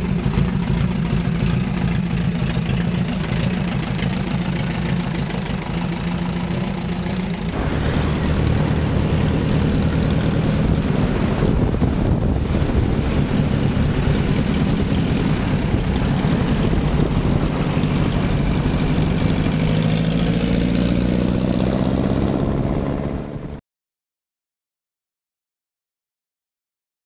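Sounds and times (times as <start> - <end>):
motorcycle engine idling: 0.0 - 11.7.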